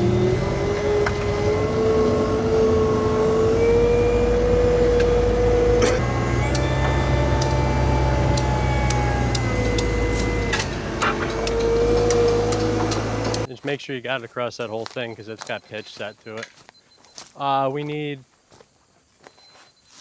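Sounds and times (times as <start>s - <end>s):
construction machine engine: 0.0s - 13.5s
sharp clicks and knocks: 5.8s - 13.5s.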